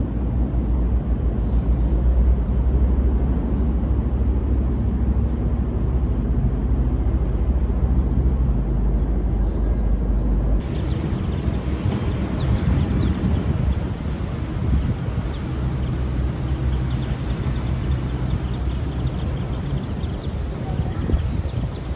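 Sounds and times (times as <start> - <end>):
steady low rumble: 0.2 - 21.9
white-eyes high chirps: 10.6 - 21.9.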